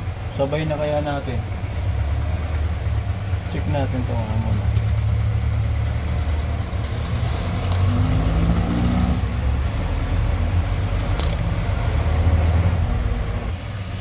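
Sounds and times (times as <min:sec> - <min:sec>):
low mechanical rumble: 0:00.0 - 0:08.6, 0:09.2 - 0:13.7.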